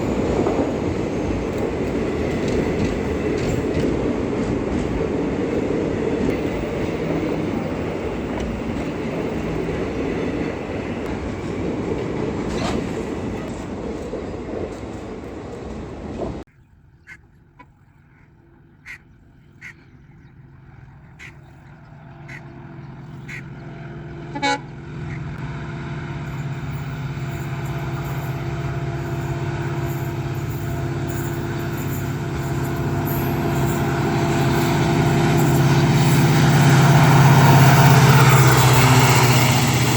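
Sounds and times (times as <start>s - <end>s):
diesel locomotive engine humming: 0.0s - 16.5s, 18.4s - 39.9s
train rumbling past: 0.0s - 16.5s, 19.6s - 39.9s
train horn toot: 24.2s - 39.0s.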